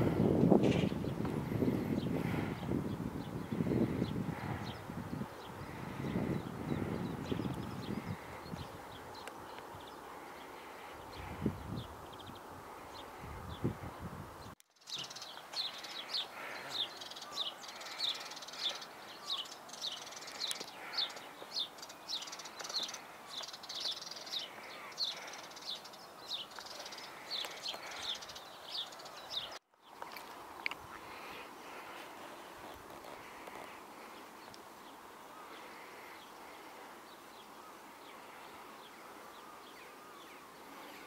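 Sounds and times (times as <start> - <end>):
steady outdoor hiss: 0.0 - 41.0
small bird chirping: 14.6 - 31.2.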